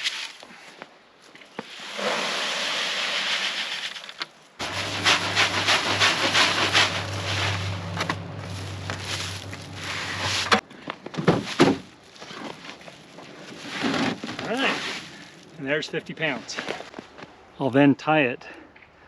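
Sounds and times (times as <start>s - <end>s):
grain poured into sack: 1.7s - 3.9s
steady low hum: 4.6s - 10.6s.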